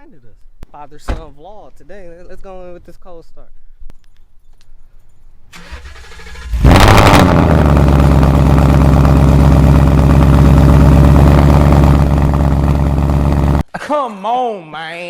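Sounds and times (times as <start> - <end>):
car engine cold start and idle: 5.5 - 13.6.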